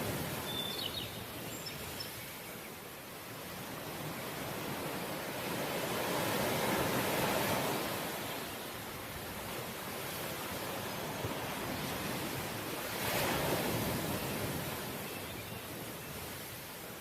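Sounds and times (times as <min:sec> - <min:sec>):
ocean waves washing ashore: 0:00.0 - 0:17.0.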